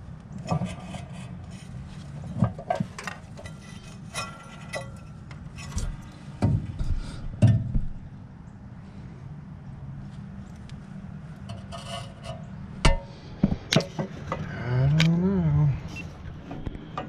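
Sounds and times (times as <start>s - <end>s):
steady low hum: 0.0s - 17.0s
rubbing and scraping of metal: 0.4s - 7.9s, 11.4s - 14.4s.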